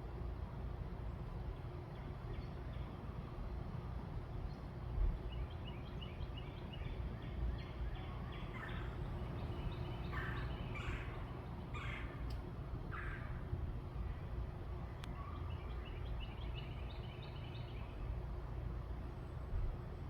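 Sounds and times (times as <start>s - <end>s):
low background rumble: 0.0s - 20.0s
birds calling: 5.4s - 13.5s.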